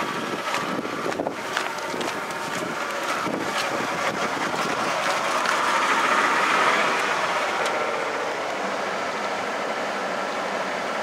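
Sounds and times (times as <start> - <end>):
truck engine rough idling: 0.0 - 11.0.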